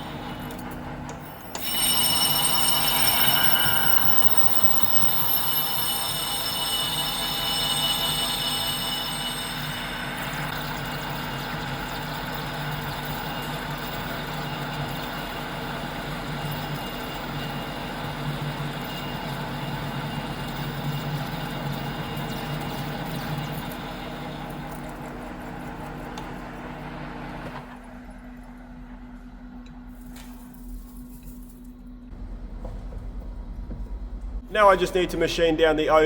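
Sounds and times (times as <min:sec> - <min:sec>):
metal lathe cutting steel: 0:00.0 - 0:25.6
lathe humming: 0:00.0 - 0:27.3.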